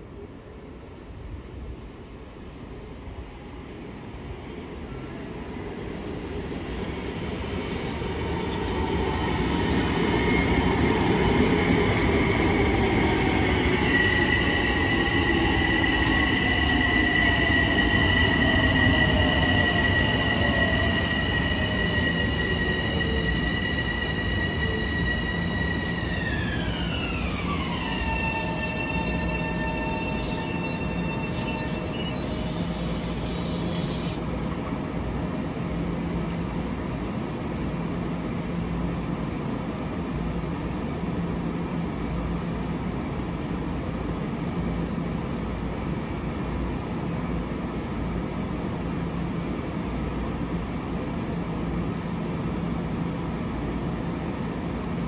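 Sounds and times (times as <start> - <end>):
train passing with rumble: 0.0 - 55.0
high squealing tone: 13.8 - 34.3.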